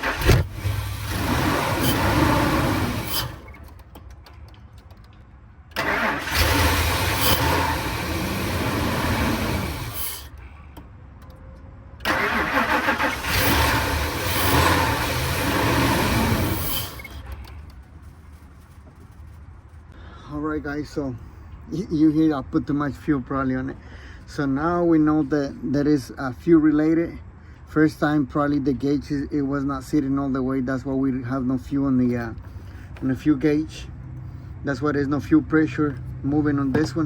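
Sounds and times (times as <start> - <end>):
engine cranking and firing: 0.0 - 10.4, 12.0 - 17.8.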